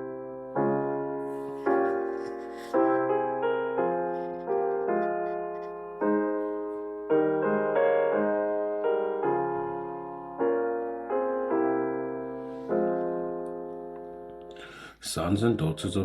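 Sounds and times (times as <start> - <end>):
gentle piano chords: 0.0 - 14.8.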